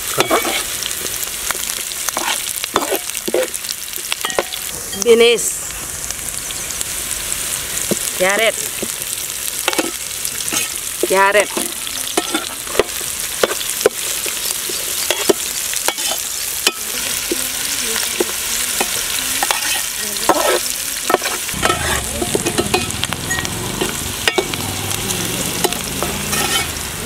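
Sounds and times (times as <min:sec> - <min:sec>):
vegetables sizzling in oil: 0:00.0 - 0:27.0
metal skimmer scraping pan: 0:00.2 - 0:00.7, 0:18.2 - 0:24.6, 0:25.6 - 0:26.8.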